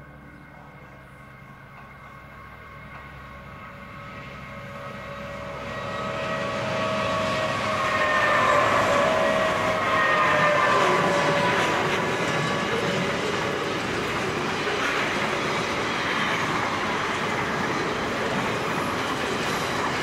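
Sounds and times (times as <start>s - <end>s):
diesel locomotives passing: 0.0s - 20.0s.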